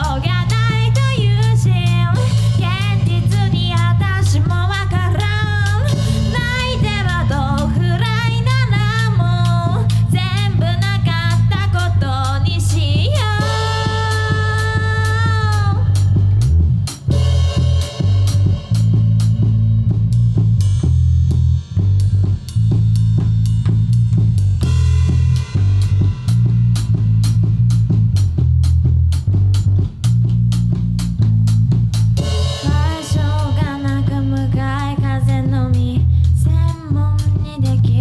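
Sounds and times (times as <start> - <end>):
drum kit beat: 0.0 - 38.0
electric bass: 0.0 - 38.0.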